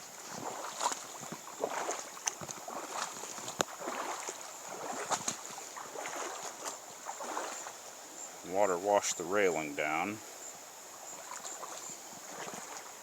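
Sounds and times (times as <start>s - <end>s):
floodwater splashing: 0.0s - 7.8s, 11.0s - 13.0s.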